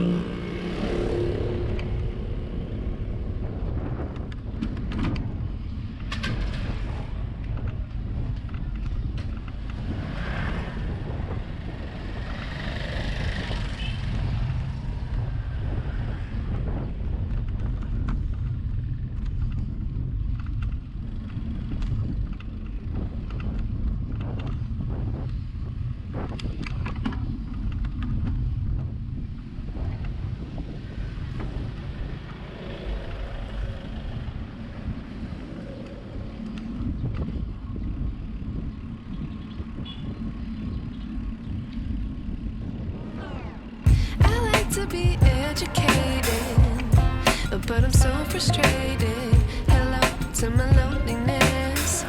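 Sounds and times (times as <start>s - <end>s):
road and traffic noise: 0.0s - 23.7s, 28.3s - 52.0s
wind rumbling on microphone: 0.0s - 52.0s.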